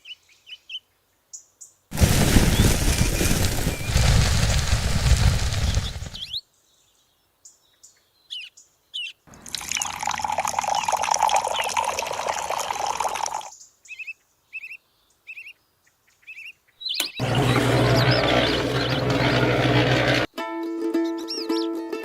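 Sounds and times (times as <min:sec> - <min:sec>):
steady rushing noise: 0:01.9 - 0:06.2
small birds chirping: 0:05.4 - 0:11.9, 0:13.5 - 0:19.5.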